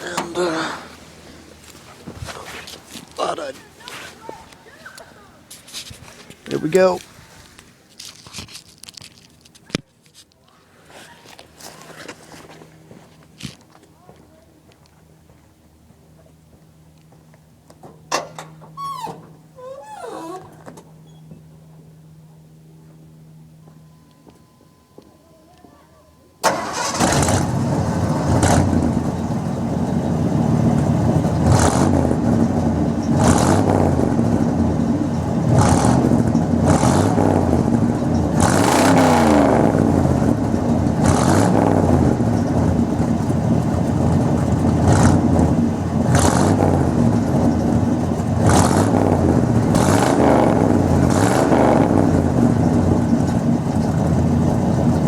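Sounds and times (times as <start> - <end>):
pickup engine revving: 26.4 - 55.0.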